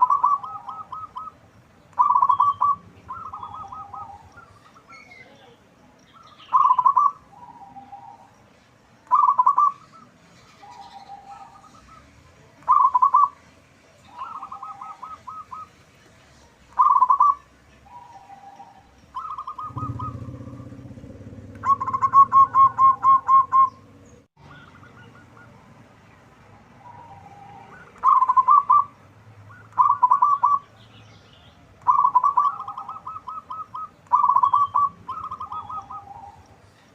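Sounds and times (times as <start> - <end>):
dove cooing: 0.0 - 1.4, 2.0 - 5.0, 6.2 - 8.3, 9.1 - 13.4, 14.1 - 15.8, 16.7 - 25.7, 26.8 - 30.7, 31.8 - 36.6
low rumble: 19.6 - 23.0.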